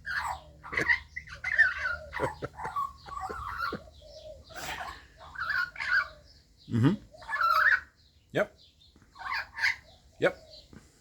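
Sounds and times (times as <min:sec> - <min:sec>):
magpie warbling and chattering: 0:00.0 - 0:08.0.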